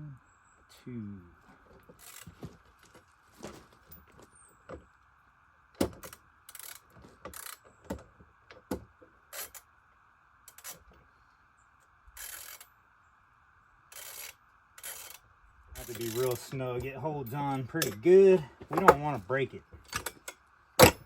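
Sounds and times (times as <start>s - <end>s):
ratchet wrench clicking: 2.0s - 2.3s, 5.9s - 7.6s, 9.3s - 9.7s, 10.5s - 10.8s, 12.2s - 12.7s, 13.9s - 15.2s, 15.8s - 16.5s.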